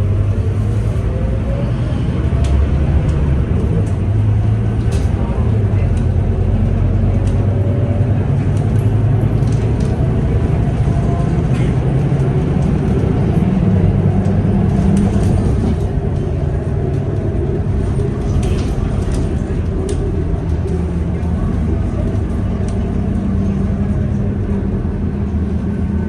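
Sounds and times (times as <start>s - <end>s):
bus engine drone: 0.0s - 26.0s.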